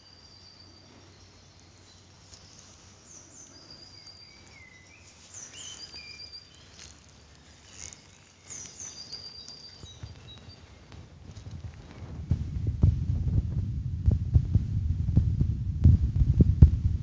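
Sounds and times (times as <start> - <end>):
small birds singing: 0.0 - 11.5
faint outdoor hush: 0.0 - 13.1.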